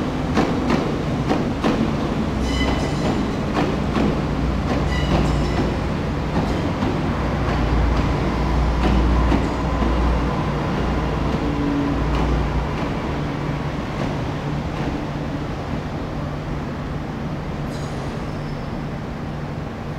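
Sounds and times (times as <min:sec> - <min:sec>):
train wheels rumbling on rail: 0:00.0 - 0:19.9
clacks over rail joints: 0:00.3 - 0:13.2.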